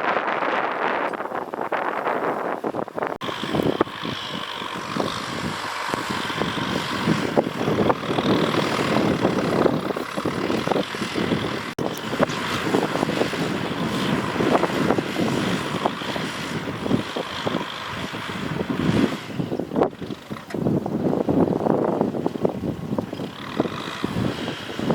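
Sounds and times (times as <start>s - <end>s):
tractor engine running: 0.0s - 24.9s.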